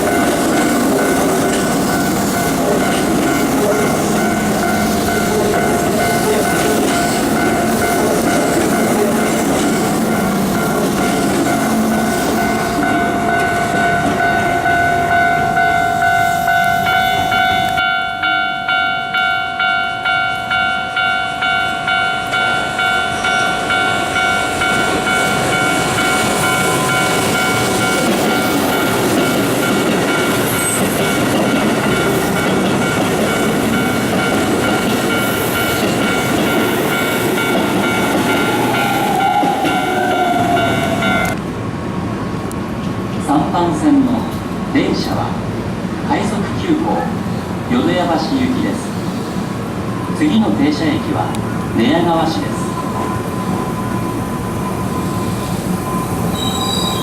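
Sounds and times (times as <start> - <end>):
wheels clacking over rail joints: 0.0 - 18.4, 20.0 - 41.5
electric train high whine: 0.0 - 57.0.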